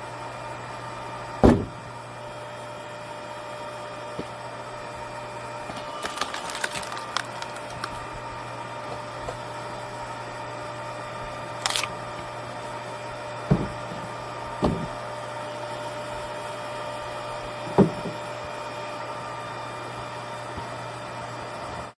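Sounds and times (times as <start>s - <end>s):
log splitter humming: 0.0s - 21.7s
heavy knocks of wood: 1.4s - 1.8s, 13.5s - 13.9s, 14.6s - 15.0s, 17.7s - 18.2s
wood cracking and splintering: 5.7s - 8.0s.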